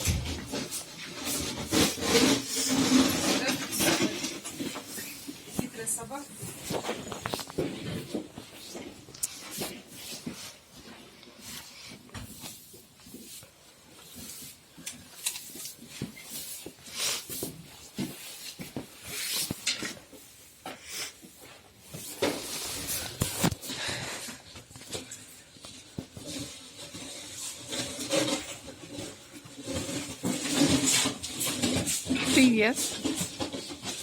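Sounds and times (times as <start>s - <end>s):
dog scuffling and rustling: 0.0s - 20.3s.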